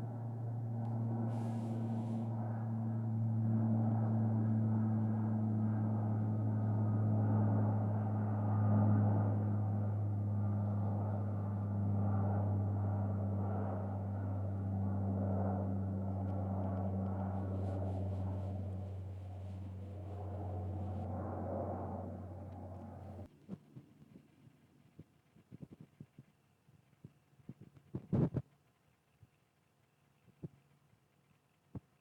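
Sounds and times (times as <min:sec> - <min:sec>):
aircraft engine drone: 0:00.0 - 0:23.3.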